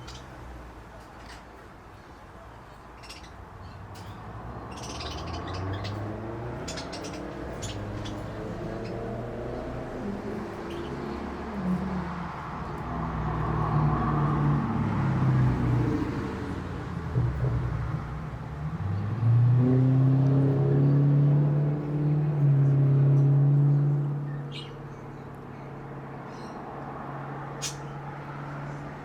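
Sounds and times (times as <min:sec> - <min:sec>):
vehicle engine revving: 0:04.1 - 0:24.7.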